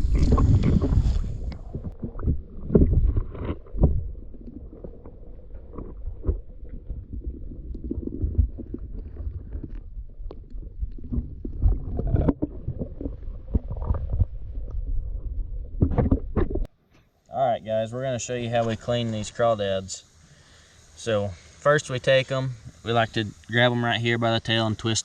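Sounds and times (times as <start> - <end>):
low rumble: 0.0 - 16.7.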